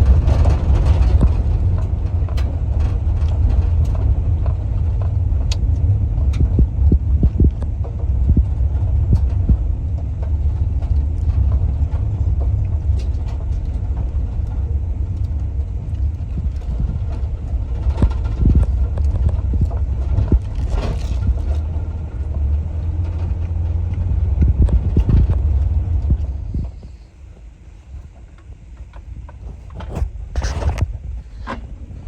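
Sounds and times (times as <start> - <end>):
knocks and rattles: 0.0 - 26.8
vehicle engine rumble: 0.0 - 32.0.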